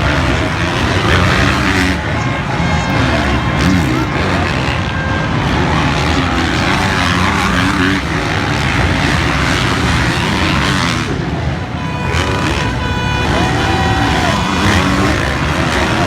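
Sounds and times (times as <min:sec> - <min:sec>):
motocross bike engines racing: 0:00.0 - 0:16.0.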